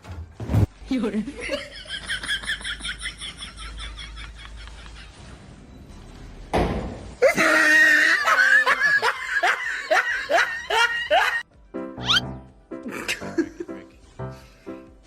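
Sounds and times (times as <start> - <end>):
person laughing loudly: 7.2 - 11.4.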